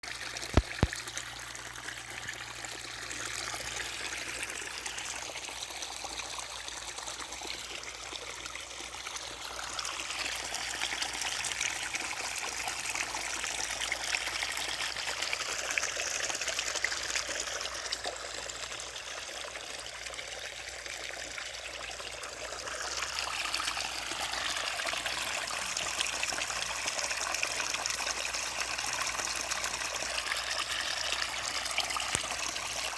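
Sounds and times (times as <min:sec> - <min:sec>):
irrigation water rushing: 0:00.0 - 0:18.9.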